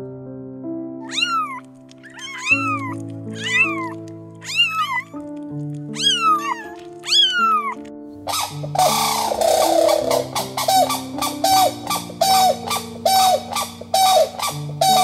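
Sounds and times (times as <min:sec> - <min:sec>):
background music with held notes: 0:00.0 - 0:15.0
kitten meowing: 0:01.0 - 0:05.3, 0:05.9 - 0:07.9.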